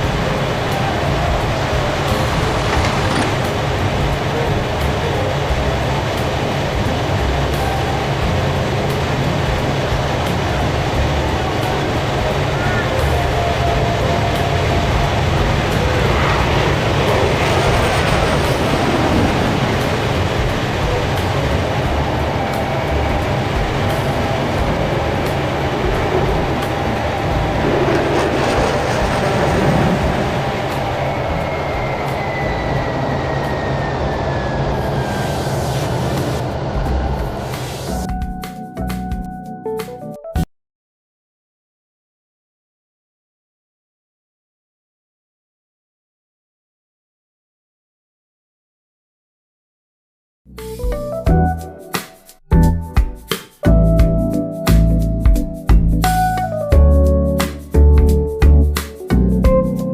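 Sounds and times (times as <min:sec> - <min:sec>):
jet aircraft engine roar: 0:00.0 - 0:38.0.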